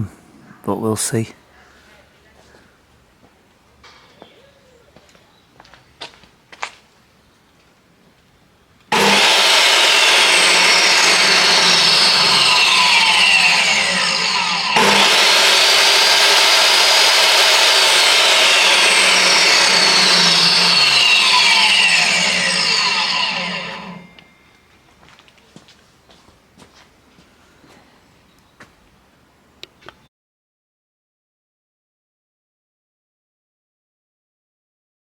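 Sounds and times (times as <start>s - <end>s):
table saw motor running: 8.9s - 24.3s.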